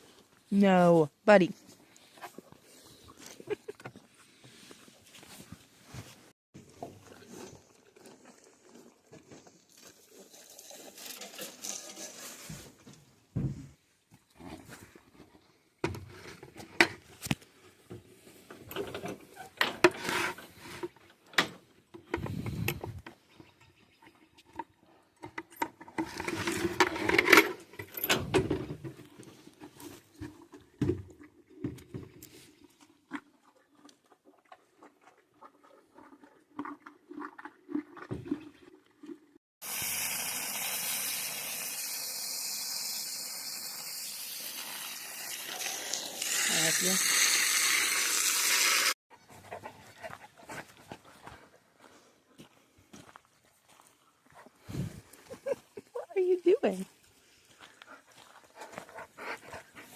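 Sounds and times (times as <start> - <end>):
knocks and rattles of handling: 24.4 - 32.3
water running: 39.6 - 49.0.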